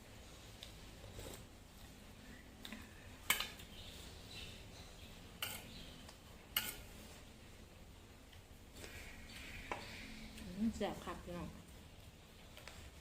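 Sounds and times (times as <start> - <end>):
cutlery clinking against dish: 5.4 - 5.7, 6.5 - 6.9.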